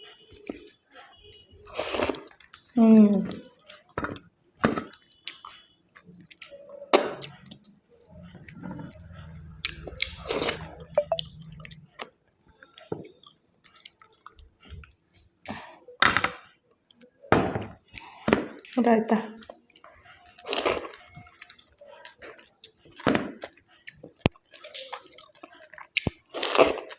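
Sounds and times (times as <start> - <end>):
person chewing food: 0.0 - 15.8, 17.8 - 18.8, 19.4 - 26.9
low rumble: 8.1 - 12.0.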